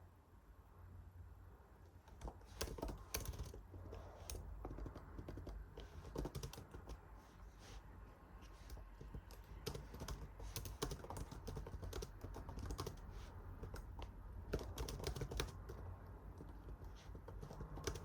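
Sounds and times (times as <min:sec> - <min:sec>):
keyboard typing clicks: 0:02.1 - 0:07.0, 0:08.7 - 0:18.0.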